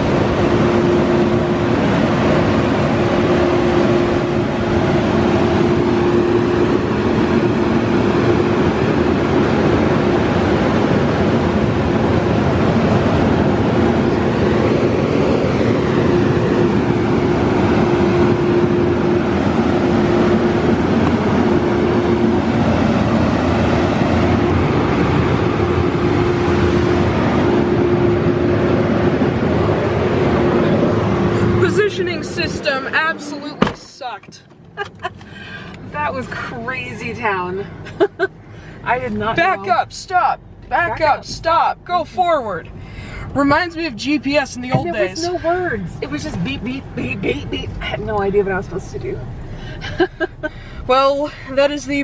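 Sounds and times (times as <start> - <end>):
car wash rushing water: 0.0 - 34.2
car wash machine hum: 0.0 - 52.0.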